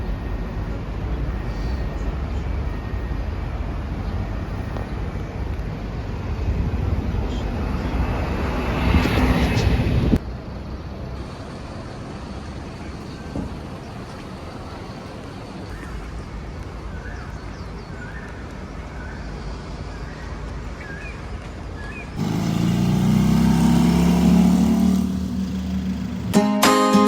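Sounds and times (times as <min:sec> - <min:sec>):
background traffic: 0:00.0 - 0:27.0
motor vehicle passing close: 0:22.2 - 0:26.4.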